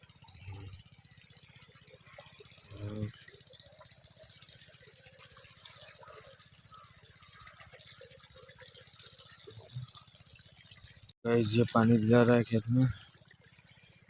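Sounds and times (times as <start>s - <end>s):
low pulsing: 0.0s - 1.0s, 2.5s - 3.2s
water gushing into a field: 0.0s - 14.0s.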